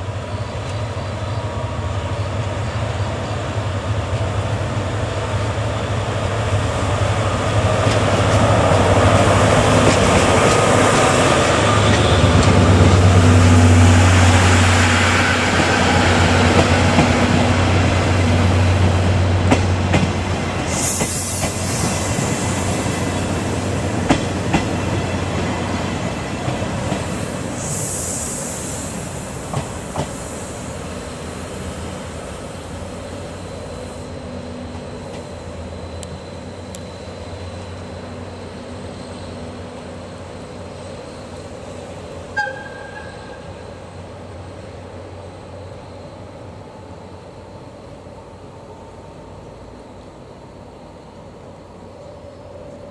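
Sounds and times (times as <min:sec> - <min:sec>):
locomotive engine drone: 0:00.0 - 0:52.9
train wheels clicking over rail joints: 0:07.0 - 0:37.4.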